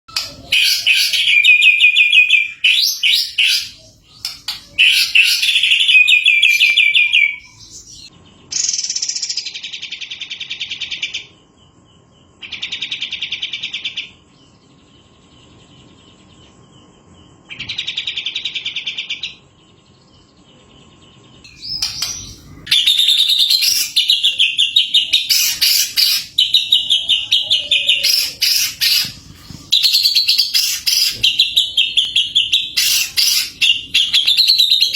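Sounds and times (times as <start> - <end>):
rapid bird chattering: 0.1 - 11.4, 21.4 - 34.9
whistled bird song: 0.1 - 11.4, 21.2 - 34.9.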